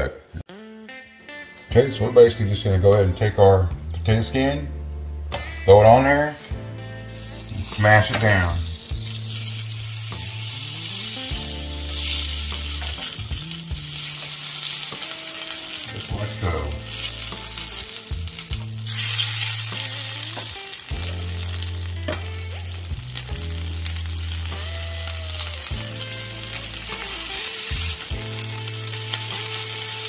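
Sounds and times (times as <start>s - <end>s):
potato sizzling in hot oil: 6.3s - 30.0s.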